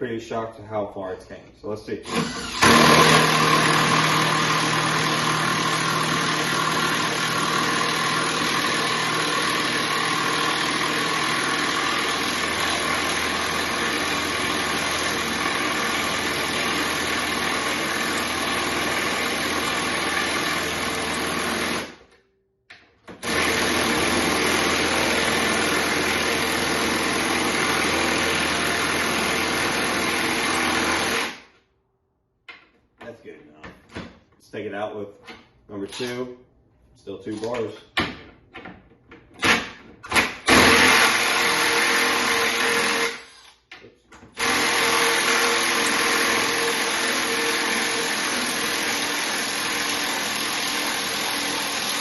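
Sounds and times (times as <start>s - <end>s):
cordless driver running under load: 2.0s - 22.0s, 40.5s - 43.2s, 44.4s - 52.0s.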